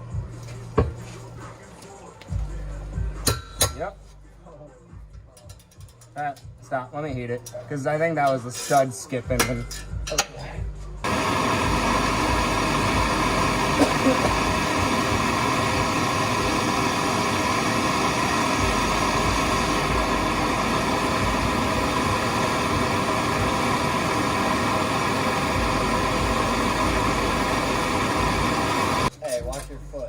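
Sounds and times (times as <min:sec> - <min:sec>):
torch flame hissing: 0:11.0 - 0:29.1.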